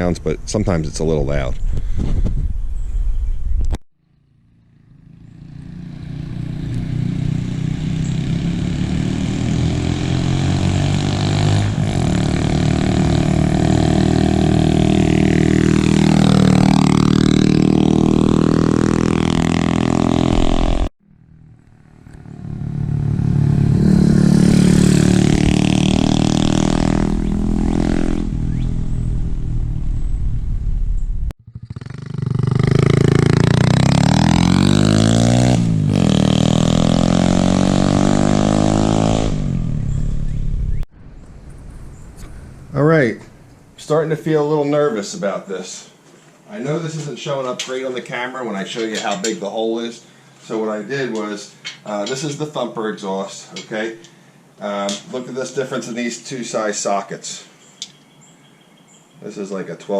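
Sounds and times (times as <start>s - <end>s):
mini bike engine passing by: 4.2s - 29.0s, 31.5s - 40.0s.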